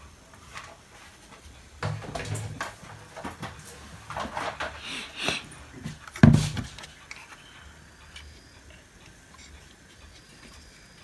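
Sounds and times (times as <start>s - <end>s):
heavy thump on workbench: 6.2s - 6.8s.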